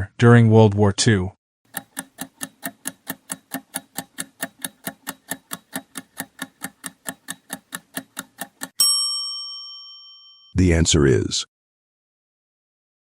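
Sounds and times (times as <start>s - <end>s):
clock ticking: 1.7s - 8.8s
bell ding: 8.8s - 10.6s.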